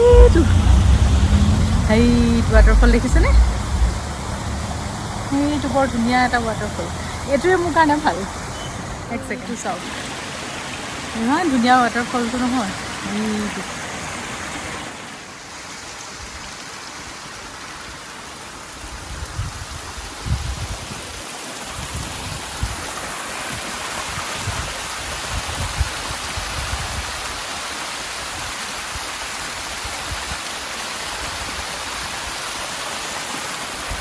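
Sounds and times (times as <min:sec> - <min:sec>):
low bumps on microphone: 0:00.0 - 0:05.3
waterfall rushing and splashing: 0:00.0 - 0:34.0.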